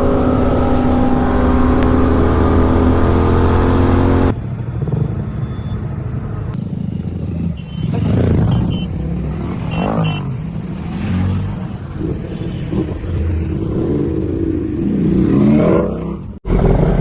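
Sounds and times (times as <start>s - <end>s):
motorcycle engine revving: 0.0s - 4.4s, 16.4s - 17.0s.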